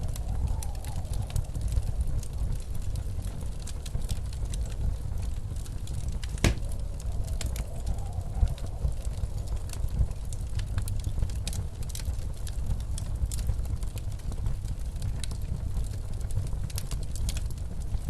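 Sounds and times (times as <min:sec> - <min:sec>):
wind howling: 0:00.0 - 0:13.2
blizzard wind rumble: 0:00.0 - 0:18.0
wood fire crackling: 0:00.0 - 0:18.0.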